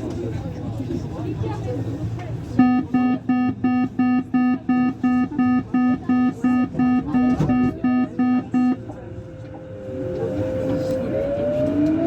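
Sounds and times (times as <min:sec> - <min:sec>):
train door warning beeps: 0:02.6 - 0:11.2.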